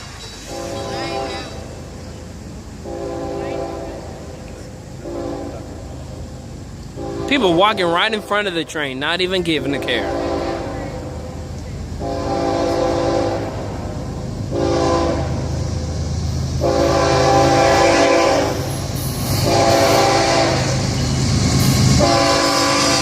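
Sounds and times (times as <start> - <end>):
locomotive engine rumble: 0.0 - 23.0
locomotive air horn blasts: 0.4 - 1.7, 2.8 - 4.3, 5.0 - 5.8, 7.0 - 8.3, 9.8 - 11.4, 12.0 - 13.8, 14.5 - 15.5, 16.6 - 20.9, 21.8 - 23.0.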